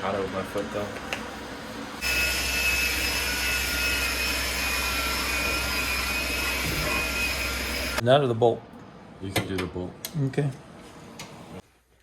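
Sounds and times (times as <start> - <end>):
machine whine: 0.0 - 8.0.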